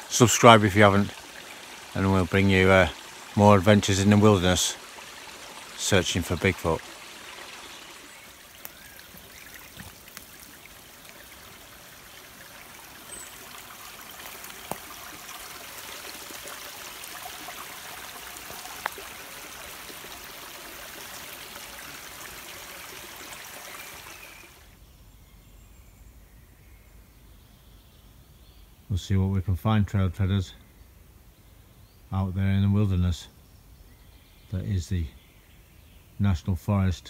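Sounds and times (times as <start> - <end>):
stream trickling over stones: 0.0 - 24.8
faint clicks: 8.5 - 10.4.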